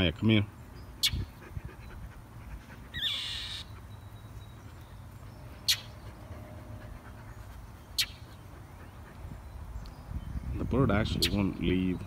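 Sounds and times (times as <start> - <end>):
wind on microphone: 1.0 - 2.2, 9.2 - 12.0
bird rasping scolding call: 2.9 - 3.7
bird sharp chip: 5.6 - 6.0, 8.0 - 8.3.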